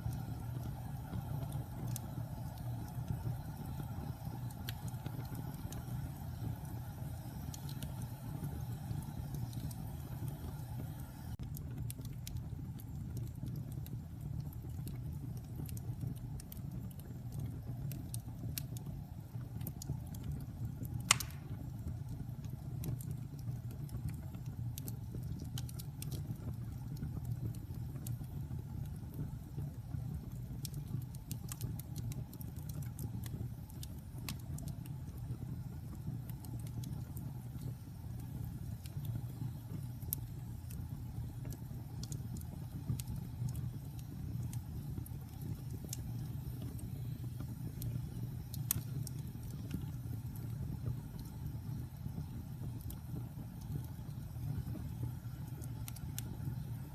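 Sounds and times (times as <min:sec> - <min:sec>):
fire crackling: 0:00.0 - 0:56.9
fire rumbling in fireplace: 0:00.0 - 0:56.9
sharp pop of fire: 0:21.0 - 0:21.9.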